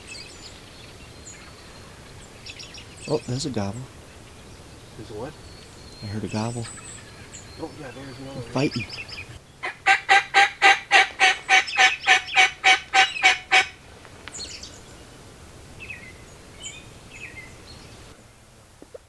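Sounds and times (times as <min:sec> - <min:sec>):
turkey yelps: 0:09.6 - 0:13.8.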